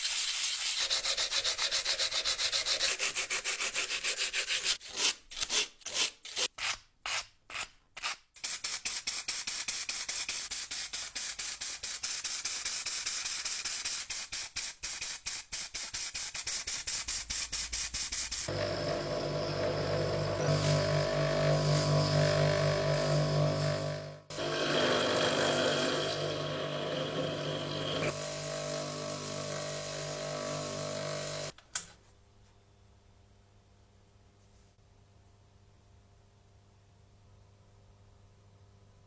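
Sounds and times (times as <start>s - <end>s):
sandpaper rubbing: 0.0s - 18.5s.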